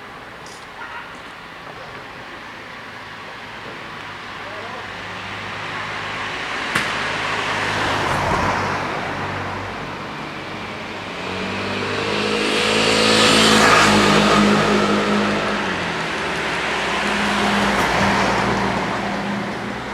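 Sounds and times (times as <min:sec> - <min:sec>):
cars passing by: 0:00.0 - 0:19.9.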